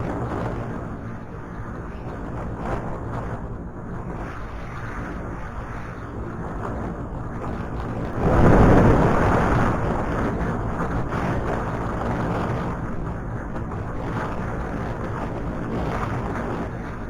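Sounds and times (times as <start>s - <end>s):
wind noise on microphone: 0.0s - 17.0s
rush of noise: 8.0s - 11.2s.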